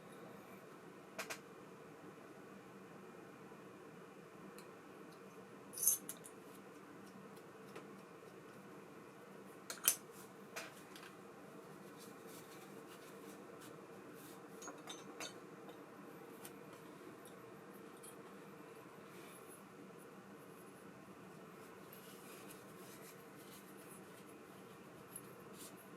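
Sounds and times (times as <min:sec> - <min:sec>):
faint steady hum: 0:00.0 - 0:25.9
small metal parts clinking: 0:05.8 - 0:06.2.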